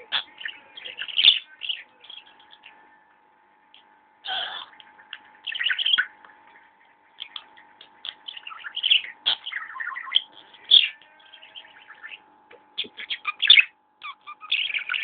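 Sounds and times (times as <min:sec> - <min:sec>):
budgerigar chattering: 0:00.0 - 0:02.8, 0:04.6 - 0:06.2, 0:07.2 - 0:12.2, 0:12.8 - 0:15.0.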